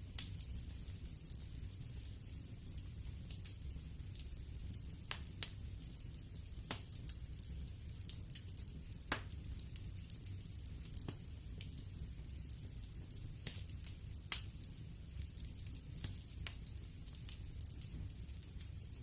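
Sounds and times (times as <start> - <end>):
fire crackles and pops: 0.0 - 19.0
wood fire rumbling: 0.0 - 19.0.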